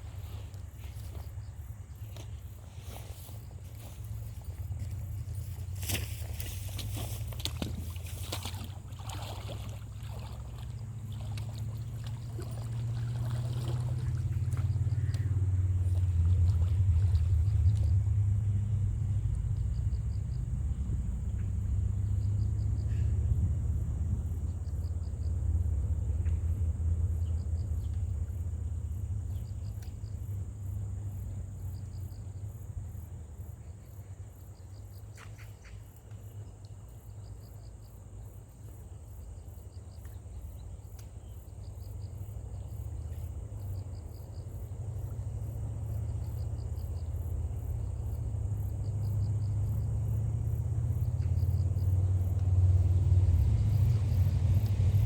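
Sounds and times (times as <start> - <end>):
insects chirping in trills: 0.0 - 55.0
low rumble: 13.7 - 30.5, 49.1 - 55.0.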